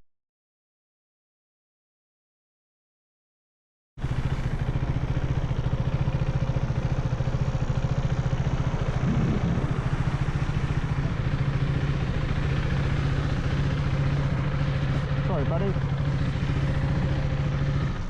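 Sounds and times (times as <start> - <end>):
motorcycle engine idling: 4.0 - 18.0.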